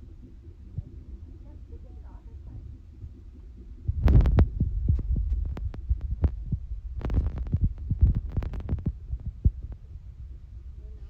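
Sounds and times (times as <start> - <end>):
fast pulsing heartbeat on doppler: 0.0 - 11.0
low hum: 0.0 - 11.0
short thumps and clicks: 3.0 - 9.8.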